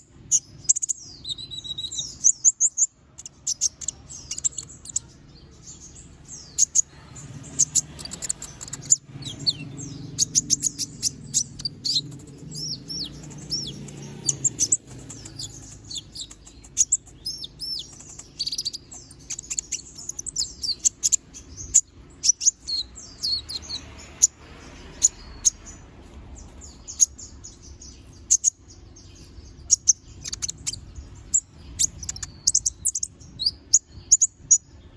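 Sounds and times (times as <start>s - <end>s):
sunbird singing rapid chirps: 0.0s - 34.9s.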